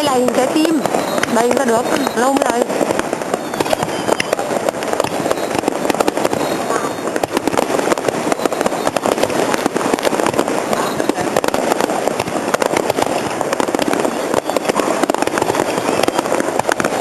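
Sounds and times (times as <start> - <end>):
fireworks crackling: 0.0 - 17.0
steady rushing hiss: 0.0 - 17.0.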